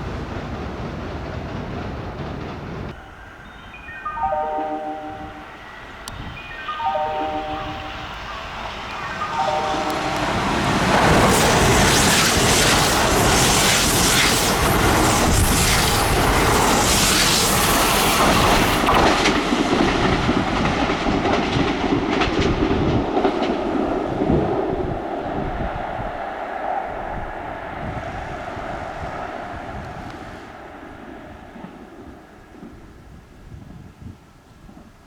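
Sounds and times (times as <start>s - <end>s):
electric train passing: 0.0s - 33.7s.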